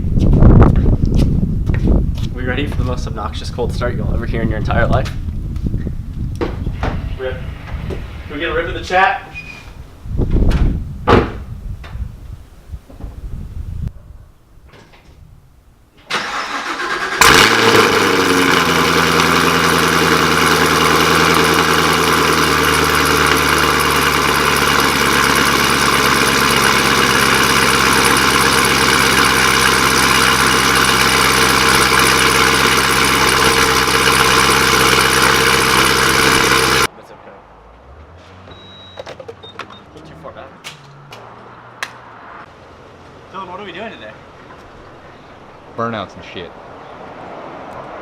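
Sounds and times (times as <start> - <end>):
starter motor cranking: 16.1 - 36.9
car engine revving and idling: 16.3 - 38.6.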